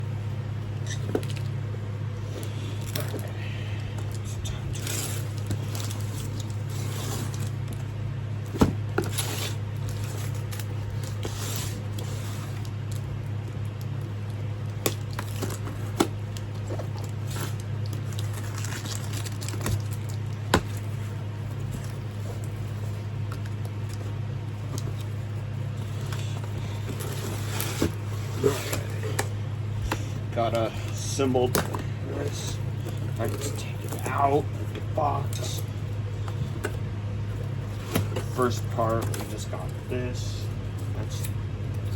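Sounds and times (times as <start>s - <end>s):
steady low hum: 0.0s - 41.9s
cardboard scraping and rustling: 4.5s - 7.8s, 8.4s - 13.0s, 15.0s - 41.3s.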